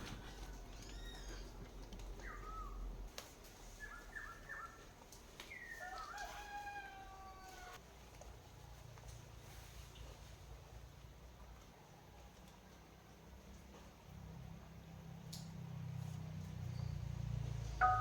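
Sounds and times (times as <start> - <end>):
rooster crowing: 5.7 - 7.8.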